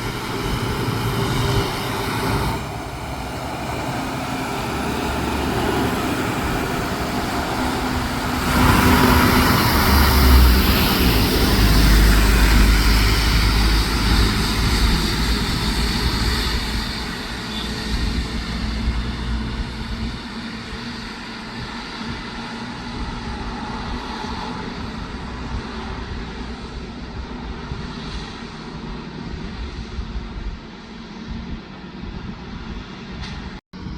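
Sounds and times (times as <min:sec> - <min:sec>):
heavy truck passing: 0:00.0 - 0:30.5.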